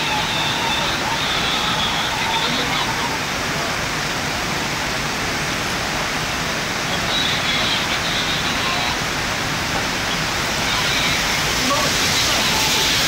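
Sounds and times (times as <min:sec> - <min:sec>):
rushing floodwater roar: 0:00.0 - 0:13.0.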